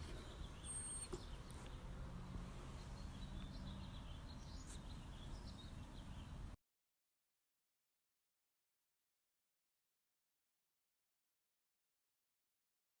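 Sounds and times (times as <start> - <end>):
faint bird chirps: 0.0 - 2.0, 2.6 - 6.6.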